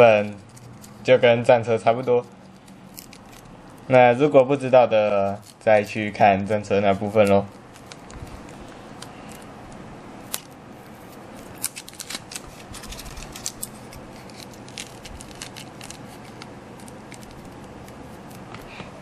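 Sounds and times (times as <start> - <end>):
scissors snipping: 2.9 - 3.9, 10.3 - 18.8.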